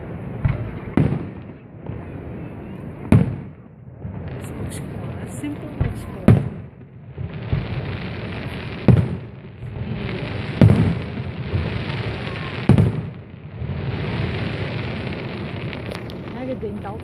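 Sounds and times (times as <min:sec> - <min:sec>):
crackling firework hiss: 0:00.0 - 0:17.0
firework shells bursting: 0:13.9 - 0:17.0.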